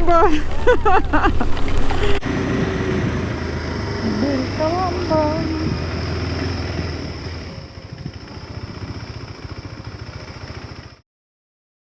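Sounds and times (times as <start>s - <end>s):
motorcycle engine idling: 1.9s - 11.0s.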